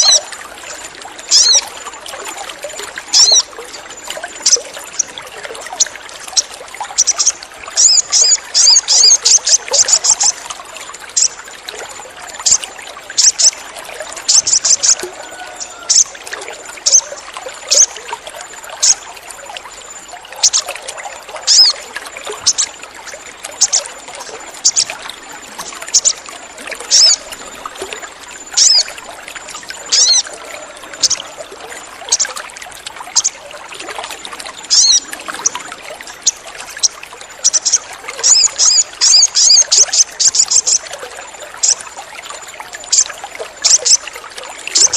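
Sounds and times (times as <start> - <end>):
trickling water: 0.0 - 44.9
bird chirping and chattering: 1.3 - 1.7, 3.1 - 3.5, 5.7 - 10.4, 11.1 - 11.4, 12.4 - 12.6, 13.2 - 13.6, 14.3 - 15.0, 15.9 - 16.1, 16.8 - 18.0, 18.8 - 19.0, 20.4 - 20.8, 21.5 - 21.8, 22.4 - 22.7, 23.6 - 23.9, 24.6 - 25.0, 25.8 - 26.2, 26.9 - 27.3, 28.5 - 28.9, 29.9 - 30.3, 31.0 - 31.3, 32.1 - 32.3, 33.1 - 33.4, 34.7 - 35.6, 36.2 - 40.9, 41.6 - 41.8, 42.9 - 44.0.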